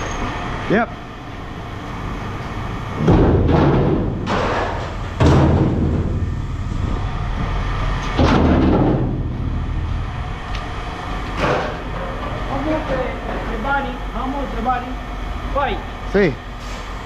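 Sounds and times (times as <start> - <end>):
low rumble: 1.6 - 12.5
heavy metal impacts ringing: 3.0 - 7.0.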